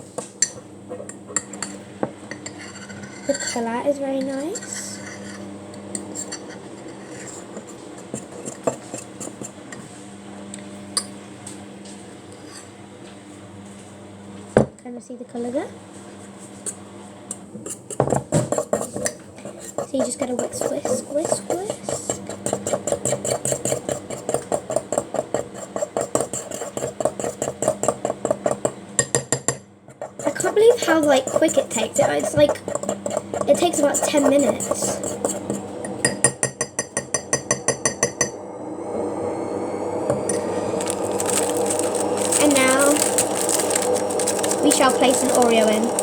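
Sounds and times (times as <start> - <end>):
fork scraping against a mug: 0.9 - 3.6, 4.5 - 9.6, 17.6 - 28.8, 29.9 - 35.7, 40.3 - 46.0.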